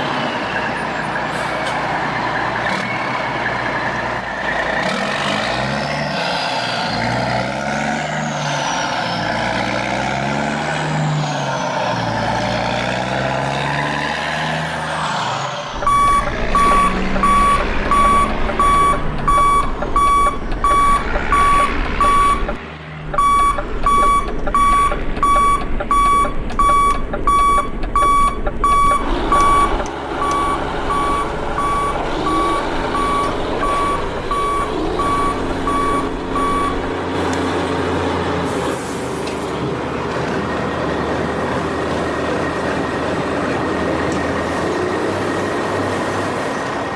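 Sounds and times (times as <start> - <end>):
reversing beeper: 15.7 - 22.6, 23.2 - 36.9.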